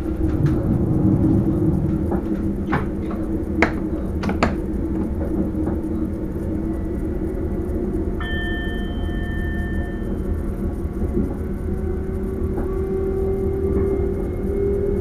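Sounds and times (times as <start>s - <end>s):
train rumble with hum: 0.0s - 15.0s
sharp clicks and knocks: 2.1s - 5.8s.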